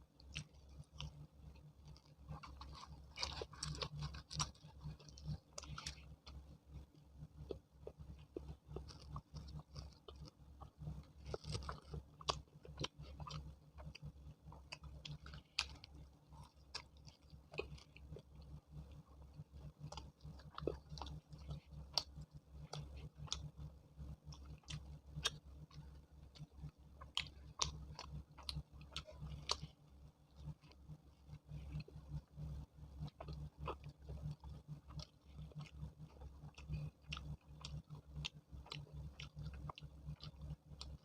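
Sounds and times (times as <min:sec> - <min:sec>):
steady low hum: 0:00.0 - 0:41.0
wet chewing and lip smacks: 0:00.1 - 0:41.0.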